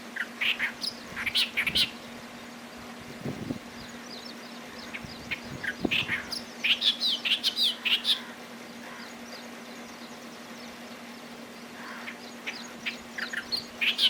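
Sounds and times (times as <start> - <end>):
reed warbler singing: 0.0 - 14.0
steady low hum: 0.0 - 14.0.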